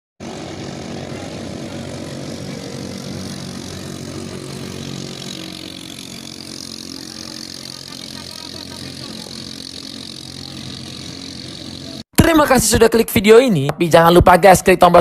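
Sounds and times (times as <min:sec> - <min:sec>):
boat engine droning: 0:00.2 - 0:12.1.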